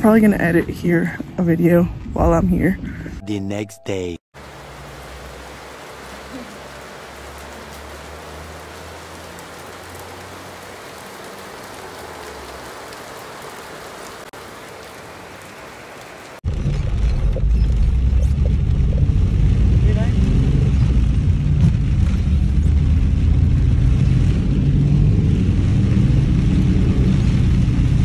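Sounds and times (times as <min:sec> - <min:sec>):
rain falling: 0:04.4 - 0:28.0
loud low rumble: 0:16.4 - 0:28.0.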